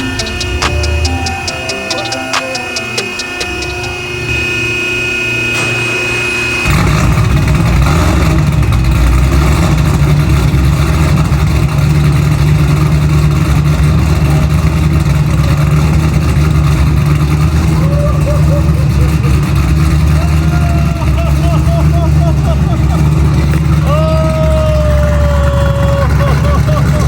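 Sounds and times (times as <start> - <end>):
music: 0.0 - 4.1
loud engine rumble: 0.0 - 27.0.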